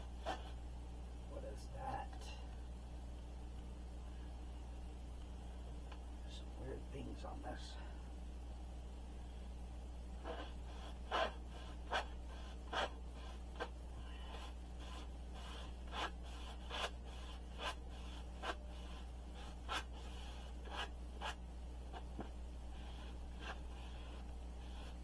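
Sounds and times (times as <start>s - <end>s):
scratching and rubbing strokes: 0.0s - 0.6s, 10.2s - 25.0s
steady low hum: 0.0s - 25.0s.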